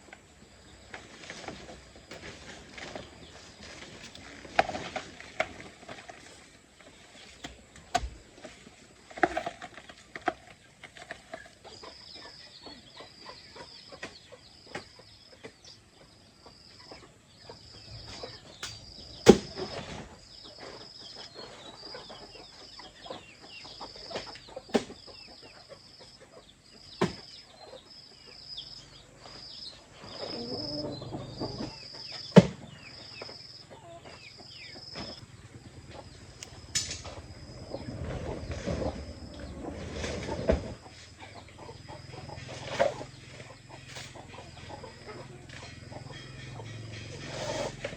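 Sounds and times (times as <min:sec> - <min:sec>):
chickens clucking: 0:09.7 - 0:47.9.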